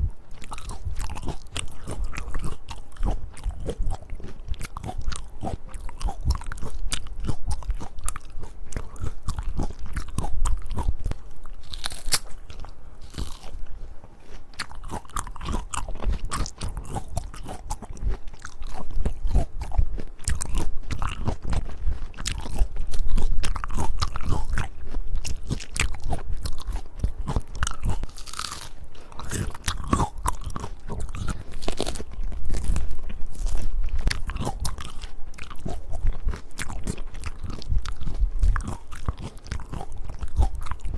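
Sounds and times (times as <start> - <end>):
crunchy chewing: 0.0 - 40.9
crisp bites of fruit: 10.1 - 12.4.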